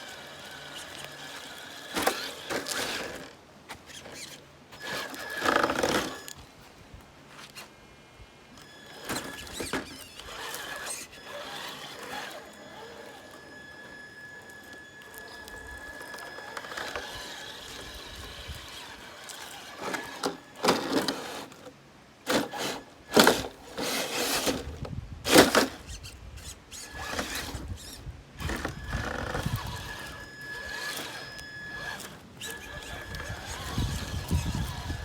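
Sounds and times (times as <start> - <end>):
rc car motor whine: 0.0 - 6.6, 8.5 - 35.0
scrapes and knocks on rock: 9.0 - 13.2, 22.3 - 31.2, 31.8 - 35.0.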